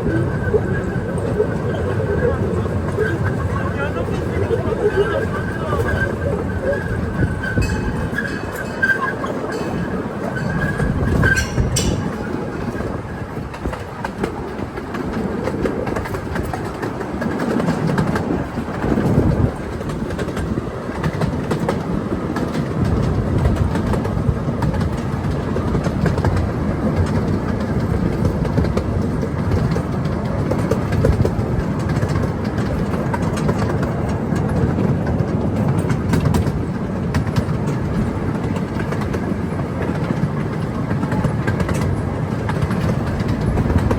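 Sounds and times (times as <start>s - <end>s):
train wheels on rails: 0.0s - 43.9s.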